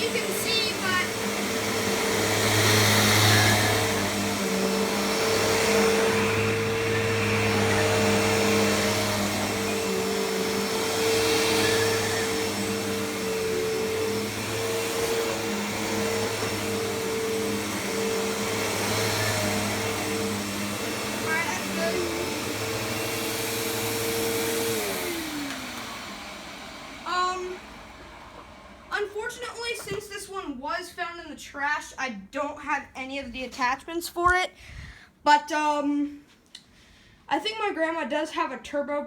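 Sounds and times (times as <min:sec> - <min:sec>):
vacuum cleaner motor hum: 0:00.0 - 0:30.0.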